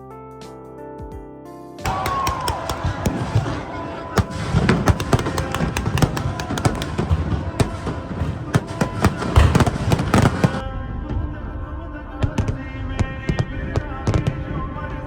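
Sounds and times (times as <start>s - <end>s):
firecrackers cracking: 1.8s - 10.6s
firecracker booms: 1.8s - 10.7s.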